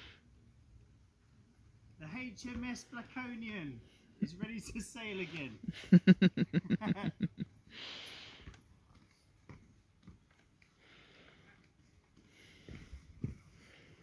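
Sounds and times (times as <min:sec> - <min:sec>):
person laughing: 0:05.6 - 0:07.5.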